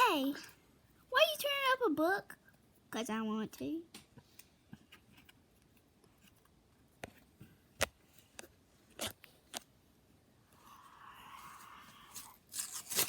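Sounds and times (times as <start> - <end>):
paper tearing: 12.1 - 13.0.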